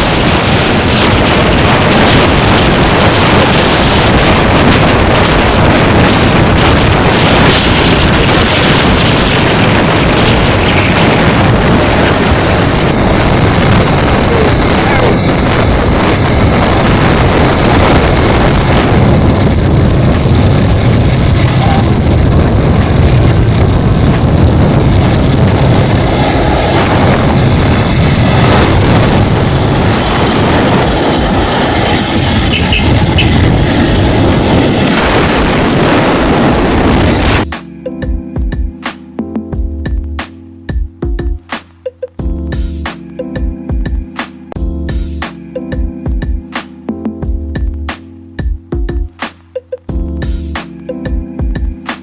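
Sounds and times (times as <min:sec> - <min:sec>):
waterfall roaring: 0:00.0 - 0:37.4.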